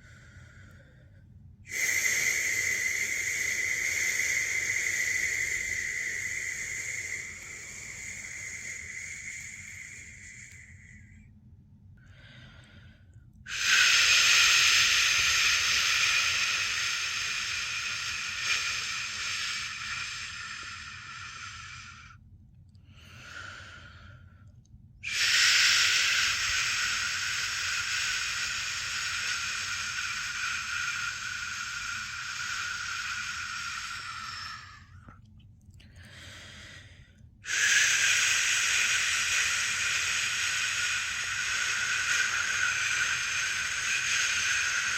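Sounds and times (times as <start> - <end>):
person shushing: 25.0 - 34.9, 37.5 - 44.9.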